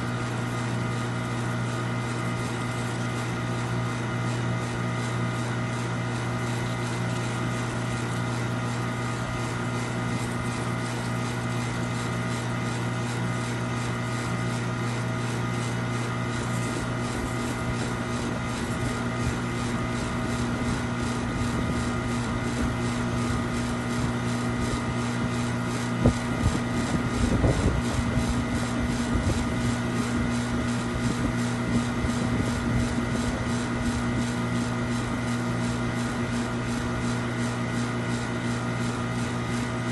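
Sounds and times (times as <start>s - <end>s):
machine humming: 0.0s - 39.9s.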